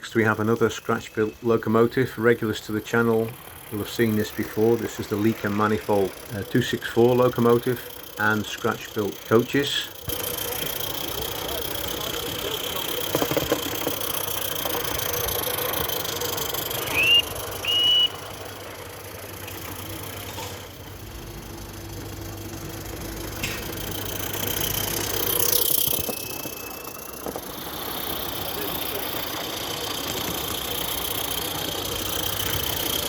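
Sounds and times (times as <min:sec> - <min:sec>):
model locomotive whistle toots: 0:14.3 - 0:18.5.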